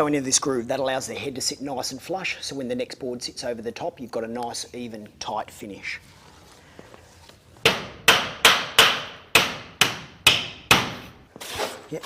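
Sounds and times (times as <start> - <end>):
hammer striking nail: 7.6 - 11.1.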